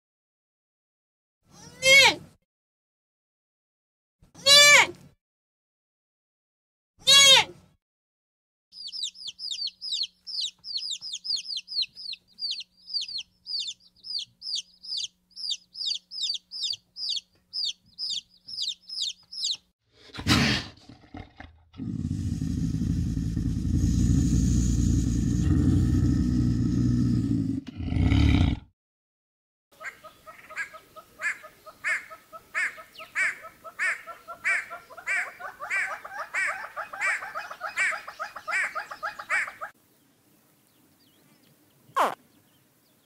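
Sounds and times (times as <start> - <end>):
chicks peeping: 8.8 - 19.7, 29.8 - 39.7.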